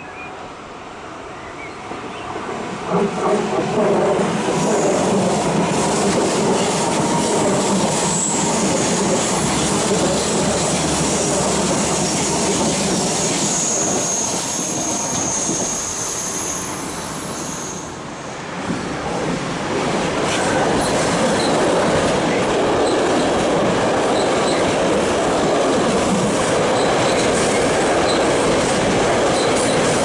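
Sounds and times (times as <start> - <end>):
high-speed train passing: 0.0 - 30.0
high wheel squeal: 12.0 - 18.0.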